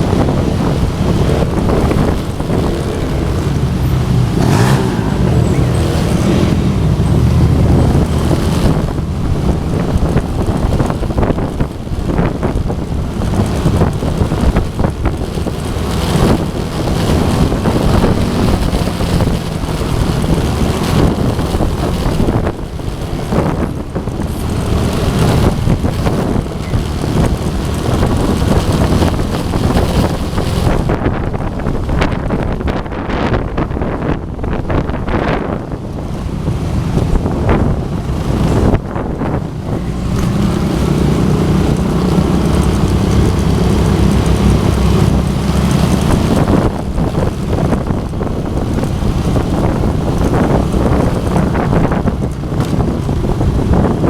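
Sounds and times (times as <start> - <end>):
motorcycle engines running: 0.0 - 54.0
wind buffeting microphone: 0.0 - 54.0.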